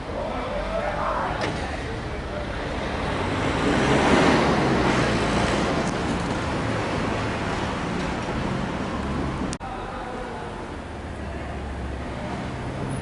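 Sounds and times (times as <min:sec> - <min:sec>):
traffic hum: 0:00.0 - 0:13.0
vehicle passing: 0:00.4 - 0:09.6.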